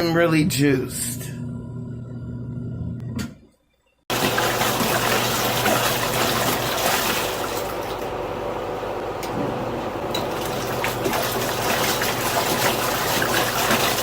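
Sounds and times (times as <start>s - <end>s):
low motor hum: 0.8s - 3.3s
water churning in washing machine: 4.1s - 14.0s.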